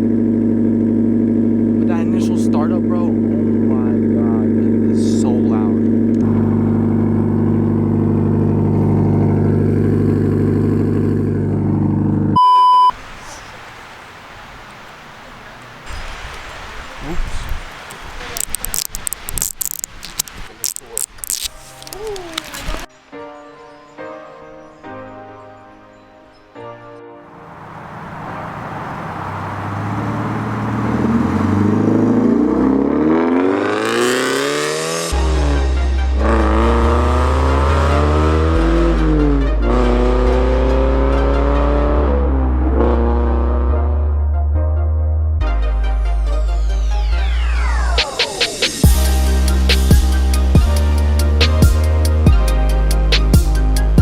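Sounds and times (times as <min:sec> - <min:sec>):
car engine idling: 0:00.0 - 0:12.4, 0:27.3 - 0:33.2
electronic beep: 0:12.4 - 0:13.0.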